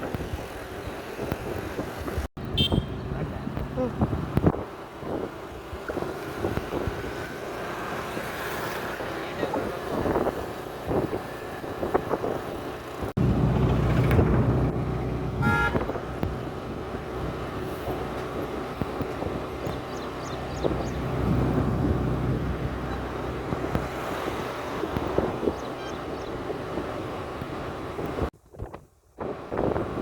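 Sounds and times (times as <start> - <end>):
vehicle engines running: 1.0 - 28.3
short horn toot: 2.5 - 3.0, 15.4 - 16.0.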